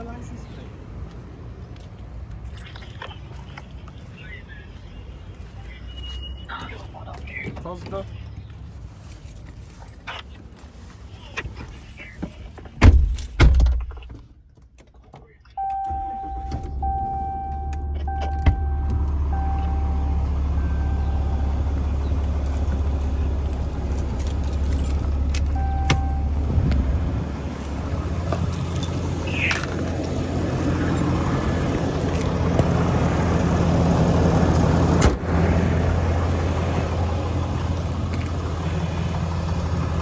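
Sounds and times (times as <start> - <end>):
dashboard warning chime: 15.6 - 26.6, 27.2 - 33.9
truck engine idling: 15.6 - 40.0
truck door shutting: 15.7 - 35.4.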